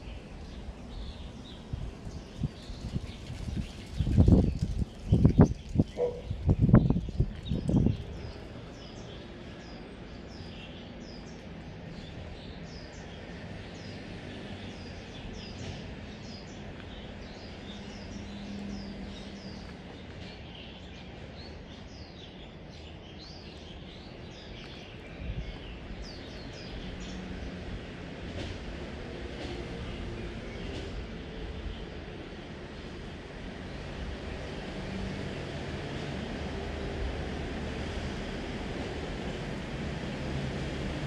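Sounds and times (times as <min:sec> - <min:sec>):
small birds chirping: 0:00.0 - 0:27.7
outdoor background: 0:00.0 - 0:41.0.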